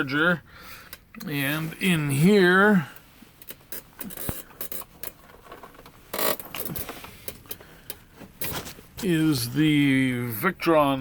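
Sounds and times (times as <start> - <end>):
clicks and knocks of handling: 3.4 - 9.1.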